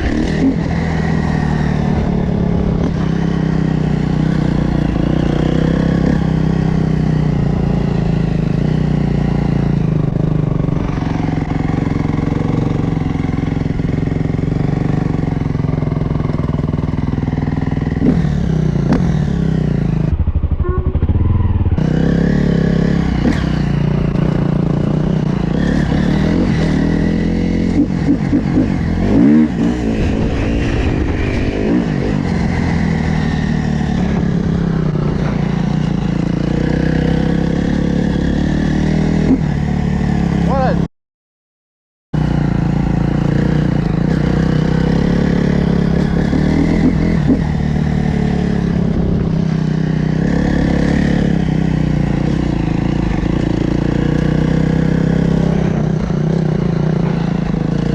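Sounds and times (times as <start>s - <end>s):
dirt bike engines revving: 21.8s - 40.9s.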